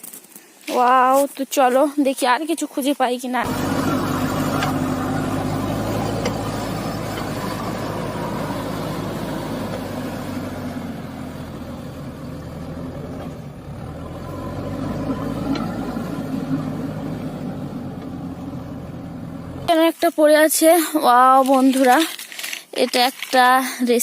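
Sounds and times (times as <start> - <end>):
vehicle engine humming: 3.4 - 19.8.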